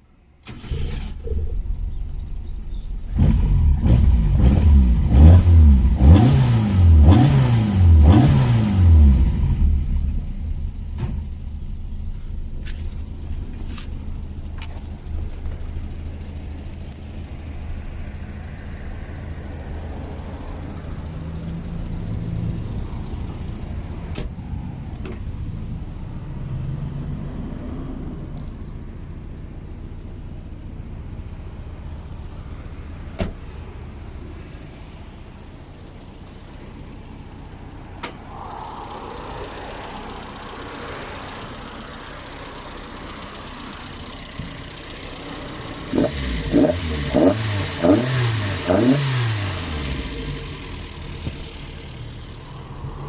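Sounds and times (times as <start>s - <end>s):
car engine idling and revving: 0.0s - 53.0s.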